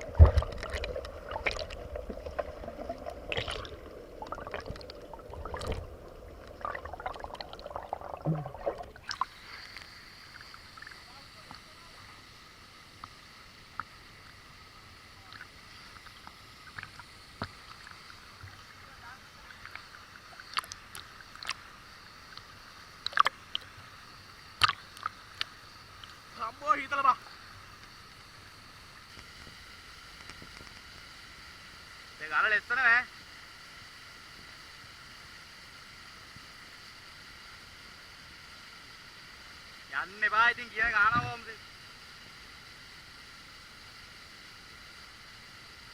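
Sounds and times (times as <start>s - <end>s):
water splashing and dripping: 0.0s - 9.4s
faint hiss of moving water: 0.0s - 45.9s.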